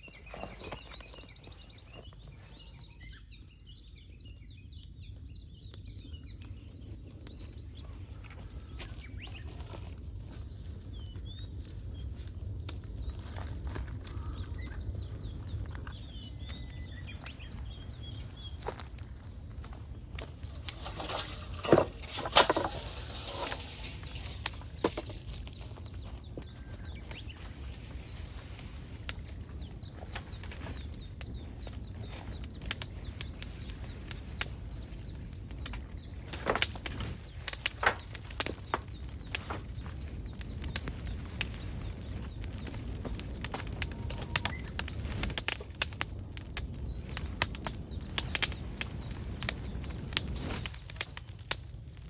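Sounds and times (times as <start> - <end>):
sharp clicks and cracks: 20.2 - 25.6.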